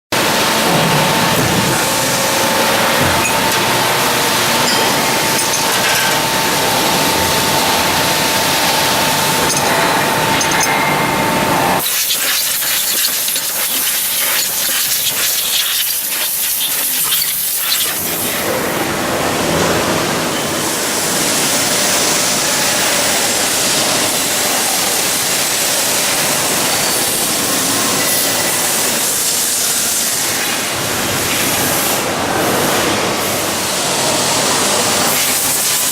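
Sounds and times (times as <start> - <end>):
machine whine: 0.2 - 23.9
loud steady machine hiss: 11.2 - 19.0, 20.6 - 35.9.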